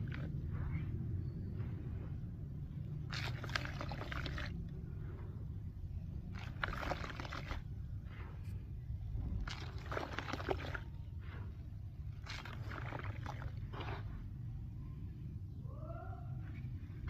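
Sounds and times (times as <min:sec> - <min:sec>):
steady low hum: 0:00.0 - 0:17.0
dry cement crumbling and crunching: 0:02.8 - 0:05.2, 0:06.2 - 0:08.5, 0:09.1 - 0:14.4.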